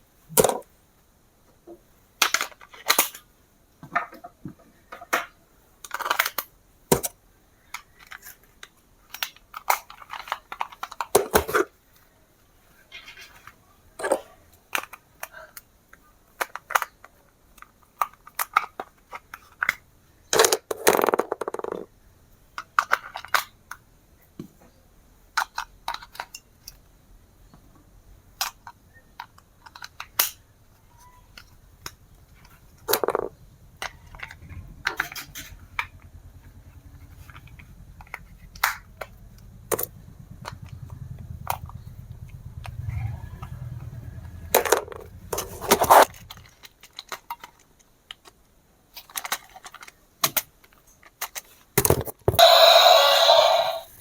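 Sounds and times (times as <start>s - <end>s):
plastic toys clicking and tapping: 2.2s - 11.7s, 12.9s - 21.9s, 22.6s - 23.8s, 25.3s - 26.9s, 27.7s - 35.3s, 45.7s - 54.0s
low steady hum: 26.6s - 46.9s.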